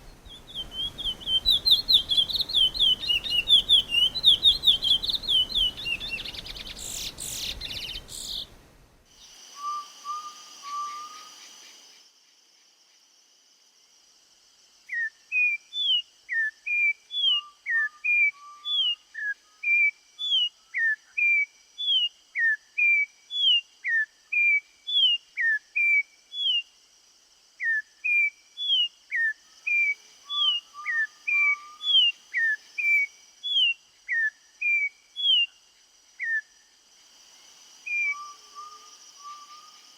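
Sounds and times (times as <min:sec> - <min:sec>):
fast chirping birdsong: 0:00.0 - 0:08.6
bird whistling downward-slurred notes: 0:09.6 - 0:11.4, 0:37.9 - 0:39.8.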